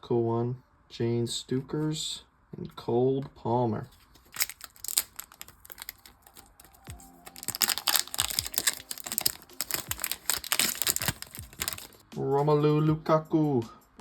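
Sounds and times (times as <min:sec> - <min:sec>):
cards clicking: 0:04.2 - 0:12.0
foil wrapper crinkling: 0:04.2 - 0:12.0
music: 0:04.4 - 0:14.0.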